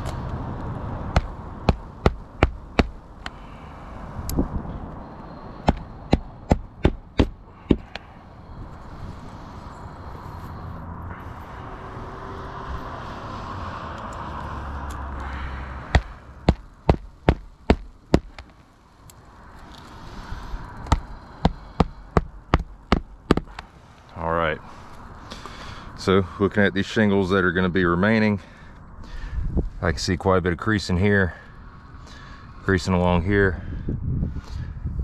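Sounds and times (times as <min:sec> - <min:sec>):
hatchet hammering nails: 0:01.1 - 0:03.0, 0:05.6 - 0:08.0, 0:15.9 - 0:18.5, 0:20.8 - 0:23.6.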